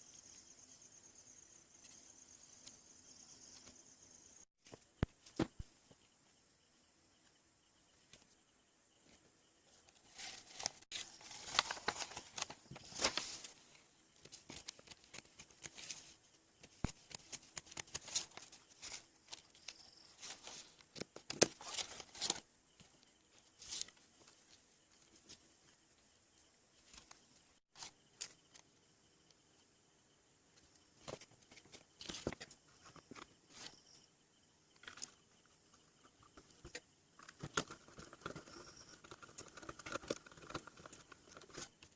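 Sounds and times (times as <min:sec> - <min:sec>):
scratching and rustling: 0:09.1 - 0:25.5, 0:34.8 - 0:41.9.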